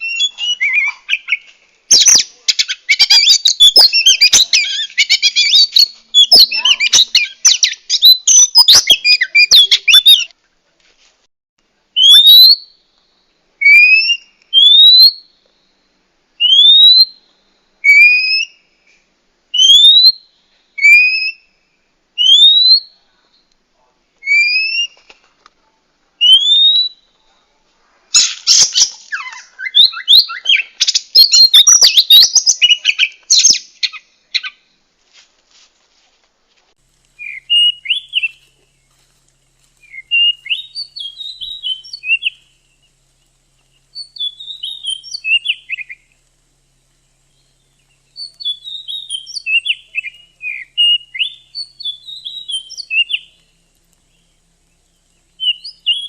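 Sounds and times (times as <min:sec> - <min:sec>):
bird chattering: 0:00.0 - 0:10.3, 0:36.9 - 0:56.0.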